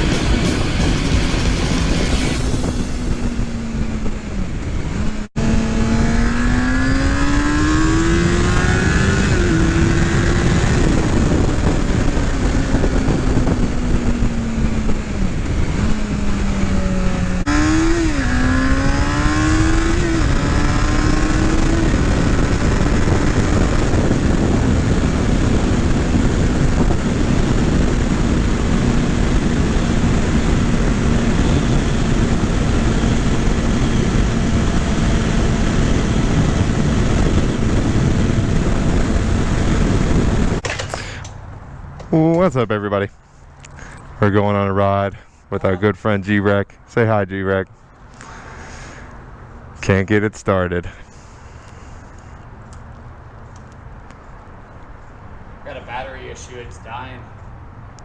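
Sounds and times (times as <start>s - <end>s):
steady rushing noise: 0.0s - 41.3s
motorcycle engine changing gears: 0.0s - 42.5s.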